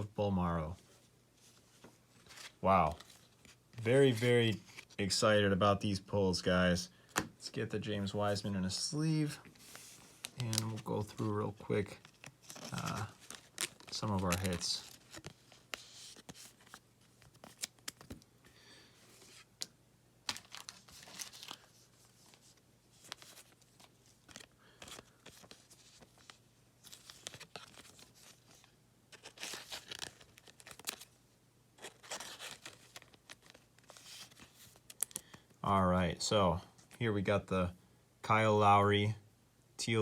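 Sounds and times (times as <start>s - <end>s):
plastic sleeves crinkling: 0.0s - 5.2s, 8.0s - 18.3s, 19.1s - 31.2s, 31.8s - 35.6s.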